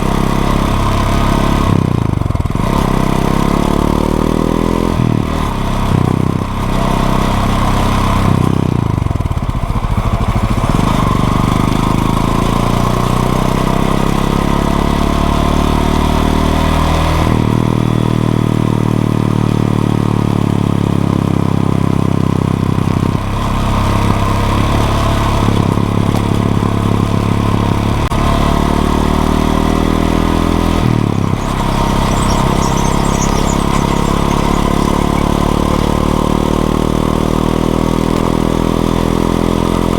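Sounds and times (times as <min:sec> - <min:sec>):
motorcycle engine revving: 0:22.7 - 0:39.9.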